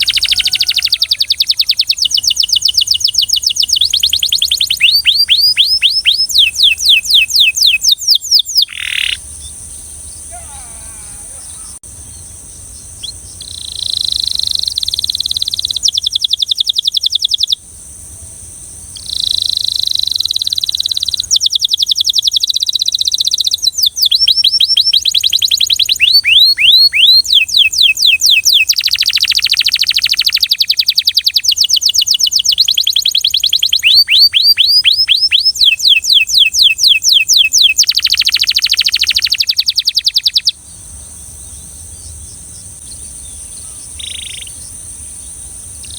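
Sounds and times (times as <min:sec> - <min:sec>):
canary singing trills: 0:00.0 - 0:17.6, 0:18.9 - 0:45.9
faint steady hiss: 0:00.0 - 0:26.0, 0:38.6 - 0:45.9.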